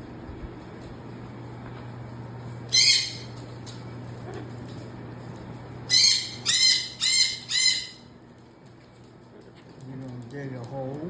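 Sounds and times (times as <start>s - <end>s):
cockatoo calling: 2.7s - 3.4s, 5.9s - 8.1s.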